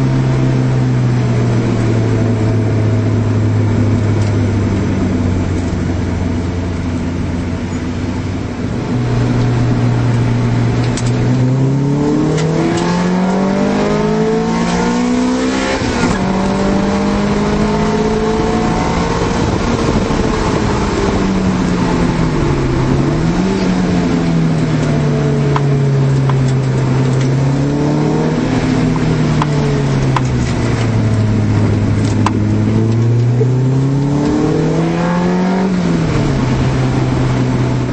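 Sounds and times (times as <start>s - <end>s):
car engine revving: 0.0s - 37.9s.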